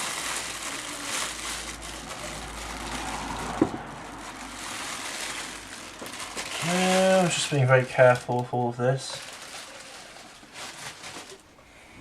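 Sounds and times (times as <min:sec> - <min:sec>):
packaging rustling: 0:00.0 - 0:11.5.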